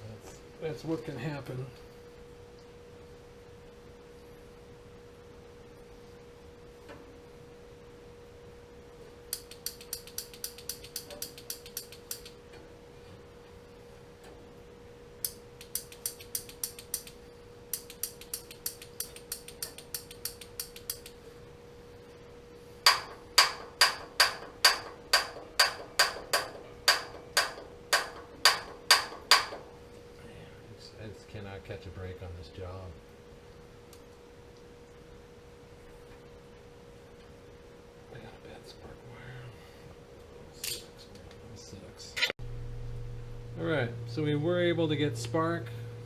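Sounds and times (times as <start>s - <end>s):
faint steady hum: 0.0s - 46.0s
pilot igniter clicking: 9.3s - 12.4s, 15.2s - 21.2s.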